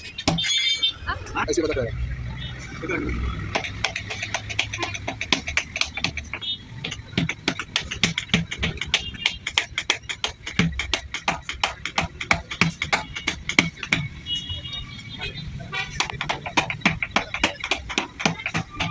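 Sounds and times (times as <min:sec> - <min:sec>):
hand tool clicking and tapping: 0:03.4 - 0:14.3, 0:15.9 - 0:18.9.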